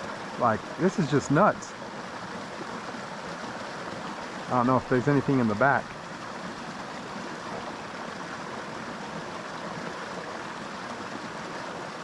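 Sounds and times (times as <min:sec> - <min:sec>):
creek flowing over rocks: 0:00.0 - 0:12.0.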